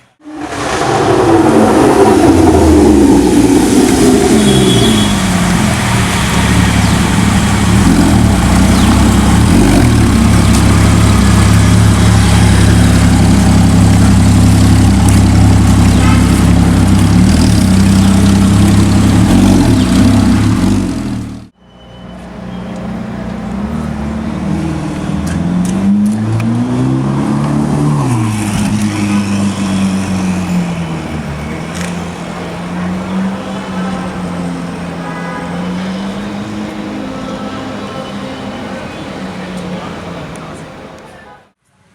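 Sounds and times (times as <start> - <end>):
engine revving: 0.0 - 21.5.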